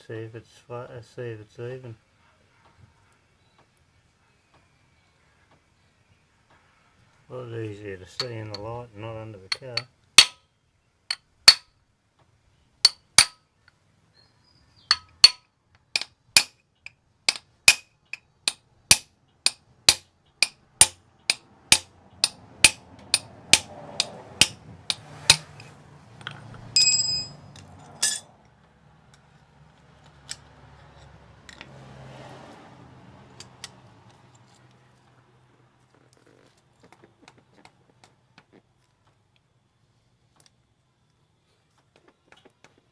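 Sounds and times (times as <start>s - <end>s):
ringing metal clink: 26.8s - 28.3s.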